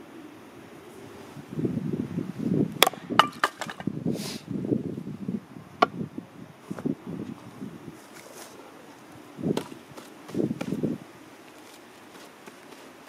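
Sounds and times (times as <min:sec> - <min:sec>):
axe chopping firewood: 0:02.8 - 0:03.9.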